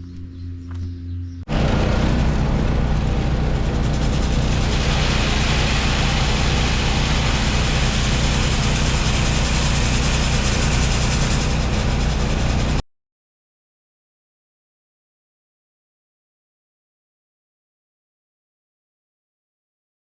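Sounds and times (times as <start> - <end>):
large vehicle engine droning: 0.0 - 12.8
loud rushing noise: 1.5 - 12.8.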